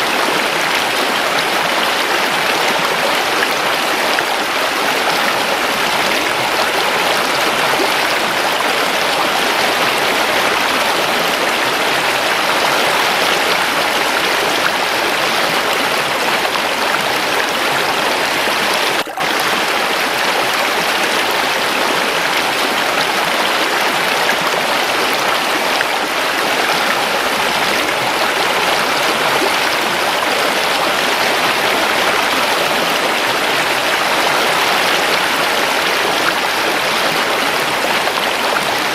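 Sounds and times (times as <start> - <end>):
waterfall rushing and splashing: 0.0 - 38.9.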